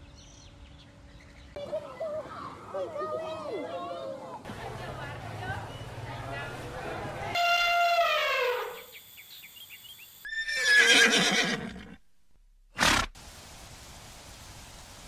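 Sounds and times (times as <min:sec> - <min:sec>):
horse whinnying: 0:10.3 - 0:12.0.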